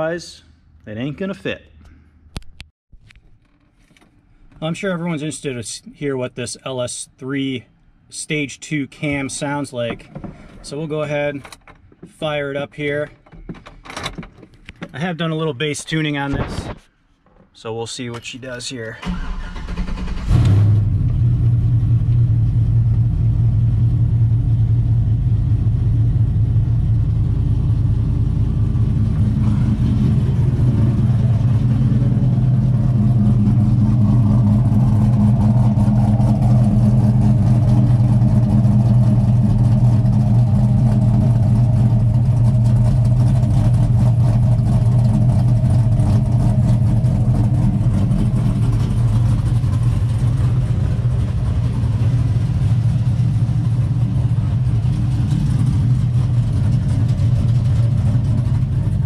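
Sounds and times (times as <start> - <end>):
engine idling with choppy lope: 21.6 - 59.0.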